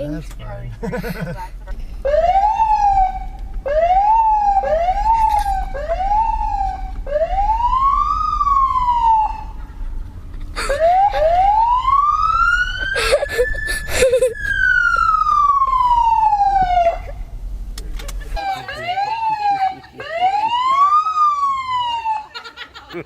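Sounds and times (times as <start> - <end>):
police siren wailing: 2.0 - 9.6, 10.6 - 17.2, 18.4 - 22.4.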